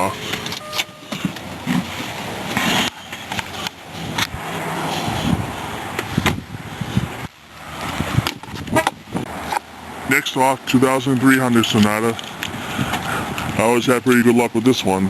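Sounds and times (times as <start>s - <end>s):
rustling and scraping: 0.0s - 9.7s, 11.5s - 13.6s.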